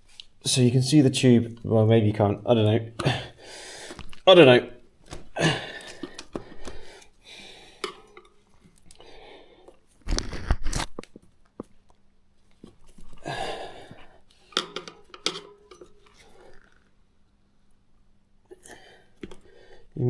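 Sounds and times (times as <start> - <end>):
tyre scraping and rubbing on rim: 10.0 - 11.0.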